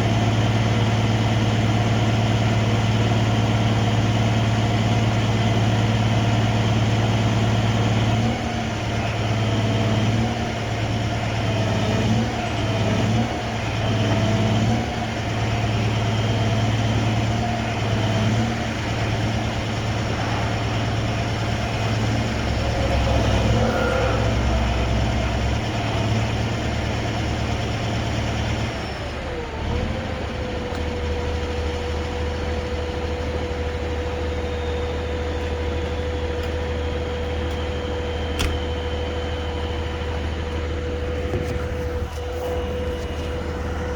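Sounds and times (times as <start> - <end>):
diesel truck engine running: 0.0 - 43.9
thin whine: 17.7 - 27.2.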